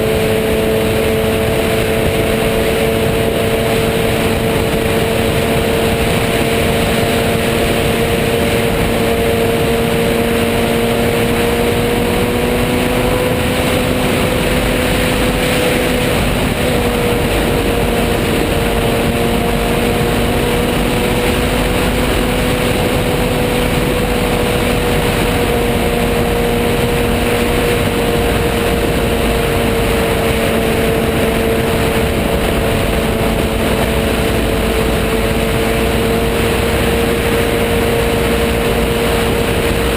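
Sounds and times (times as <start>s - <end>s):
loud wind noise: 0.0s - 39.9s
motorcycle engine running: 0.0s - 39.9s.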